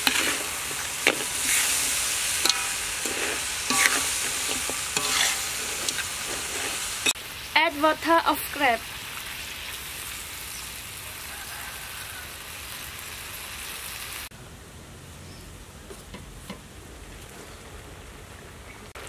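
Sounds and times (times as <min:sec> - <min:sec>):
food sizzling in a wok: 0:00.0 - 0:14.3.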